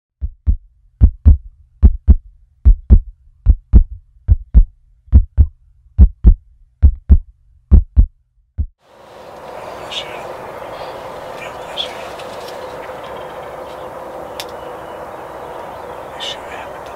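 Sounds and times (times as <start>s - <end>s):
heartbeat thumps: 0.2s - 8.7s.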